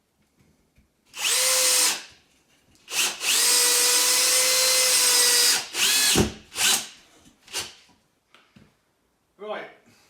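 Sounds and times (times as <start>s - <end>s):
drill-driver driving screws: 1.2s - 2.1s, 2.8s - 7.8s.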